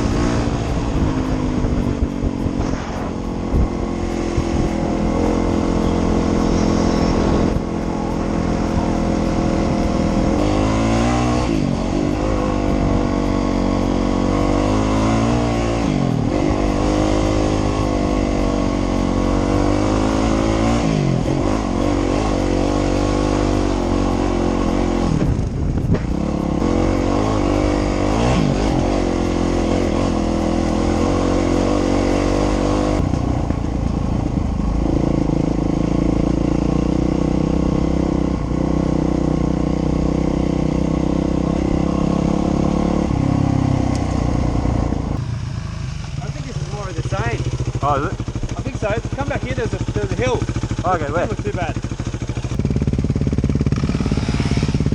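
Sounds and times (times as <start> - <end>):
dirt bike engine running: 0.0 - 54.9.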